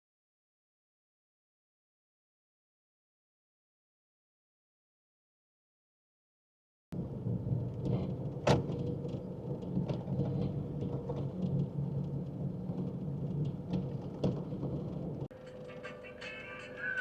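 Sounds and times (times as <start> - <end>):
car engine and road rumble: 7.0 - 17.0.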